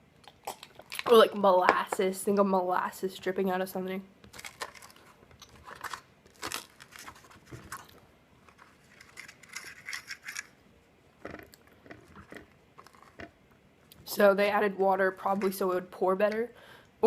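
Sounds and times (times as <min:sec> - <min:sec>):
chewing noises: 0:00.2 - 0:01.1.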